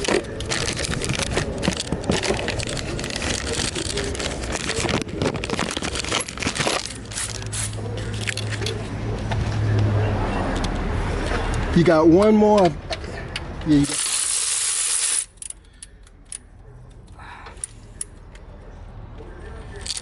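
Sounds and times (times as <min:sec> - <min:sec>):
metal tools clinking and scraping: 0:00.0 - 0:09.0, 0:19.4 - 0:20.0.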